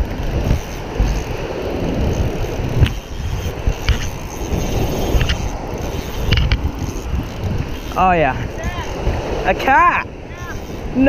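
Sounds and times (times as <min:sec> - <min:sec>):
surf washing: 0:00.0 - 0:11.0
wind buffeting microphone: 0:00.0 - 0:11.0
sharp clicks: 0:02.0 - 0:09.3.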